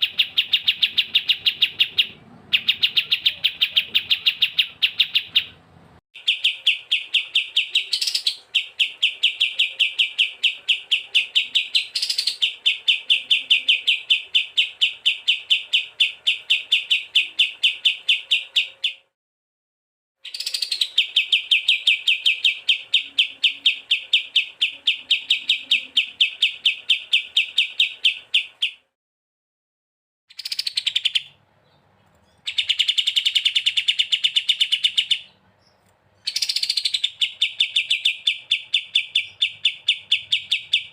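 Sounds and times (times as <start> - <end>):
songbird chatter: 0.0 - 5.6, 6.2 - 19.1, 20.2 - 28.9, 30.3 - 40.9.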